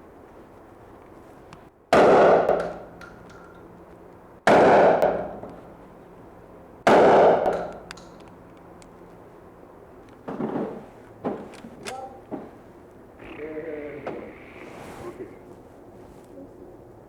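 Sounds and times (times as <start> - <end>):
echoing gunshots: 1.9 - 3.0, 4.4 - 5.8, 6.8 - 7.8.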